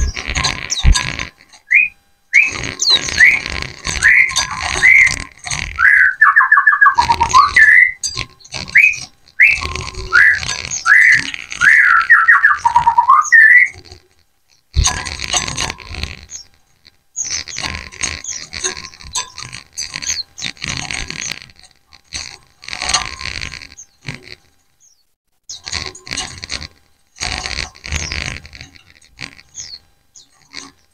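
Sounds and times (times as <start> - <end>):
birds chirping: 0.0 - 13.8, 14.8 - 16.6, 17.2 - 21.4, 27.7 - 30.9
birds twittering: 0.0 - 13.8, 15.8 - 16.6, 17.2 - 21.4, 27.8 - 30.9.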